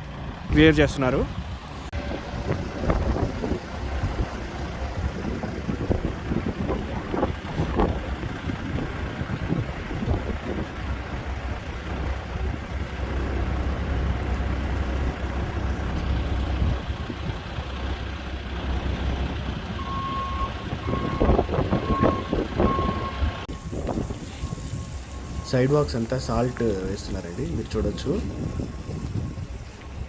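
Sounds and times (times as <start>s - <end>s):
vehicle engine idling: 0.0s - 30.0s
wind: 0.0s - 30.0s
reversing alarm beeping: 19.8s - 30.0s.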